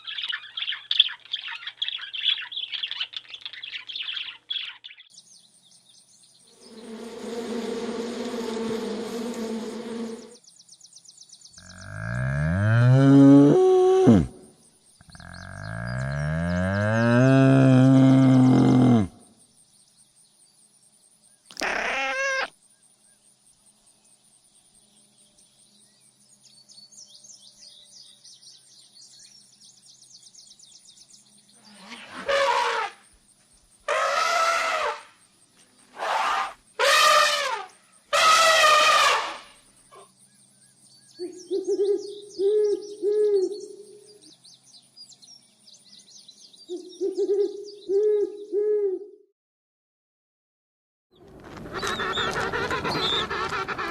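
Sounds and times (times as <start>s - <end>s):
bird chirps: 0.0s - 12.0s, 39.6s - 48.6s, 51.7s - 53.9s
animal calls: 6.6s - 10.4s, 21.5s - 22.5s, 33.9s - 35.1s, 35.9s - 40.1s, 51.6s - 53.9s
bird twittering: 51.7s - 53.9s.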